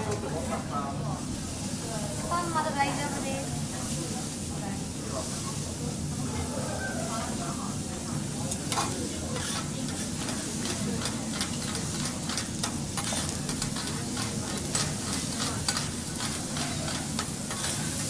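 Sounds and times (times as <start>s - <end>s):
food sizzling on a griddle: 0.0s - 18.0s
metal spatulas scraping hot plate: 8.6s - 18.0s.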